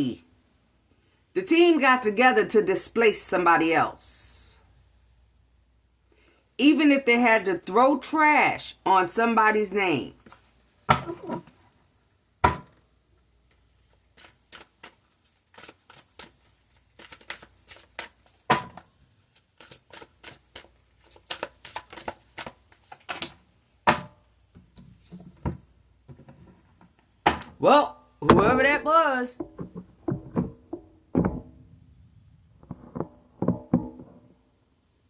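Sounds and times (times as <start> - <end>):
cards being shuffled: 13.6 - 23.5.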